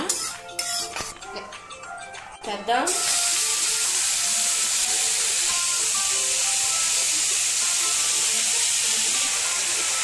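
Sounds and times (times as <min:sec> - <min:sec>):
beetroot sizzling in a pan: 0:02.9 - 0:10.0.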